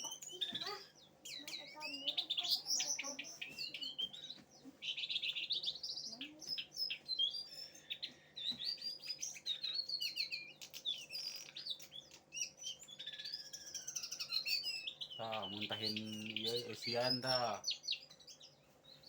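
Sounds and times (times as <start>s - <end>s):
songbird singing chirps and trills: 0.0s - 19.0s.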